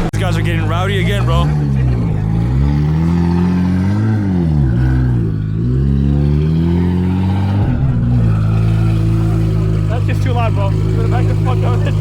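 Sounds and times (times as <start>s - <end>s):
car engine revving loud exhaust: 0.0s - 12.0s.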